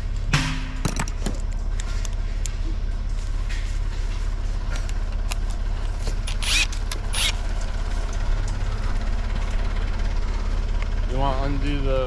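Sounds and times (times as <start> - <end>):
diesel engine idling: 0.0 - 12.0
short rasping bursts: 6.2 - 7.4.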